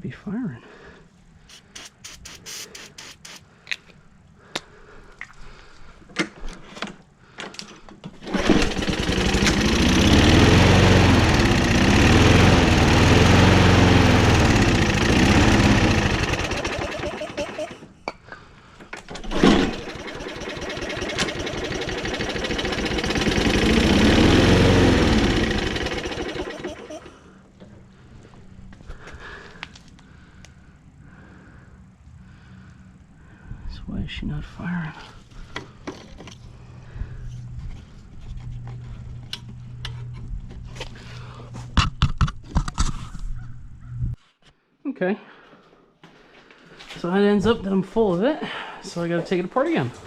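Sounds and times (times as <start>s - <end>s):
lawn mower engine running: 8.2s - 17.9s, 19.1s - 27.7s.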